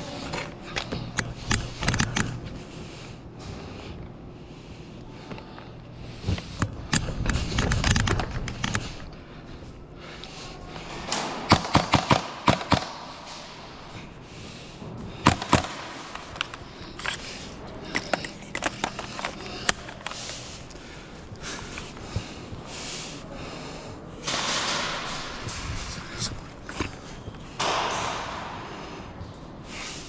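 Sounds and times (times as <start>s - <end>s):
airsoft gunshots: 11.3s - 13.1s.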